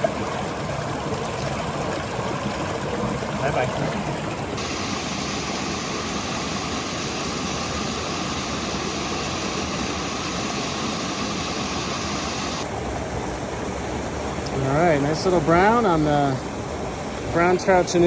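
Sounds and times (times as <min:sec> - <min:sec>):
rushing mountain creek: 0:00.0 - 0:18.0.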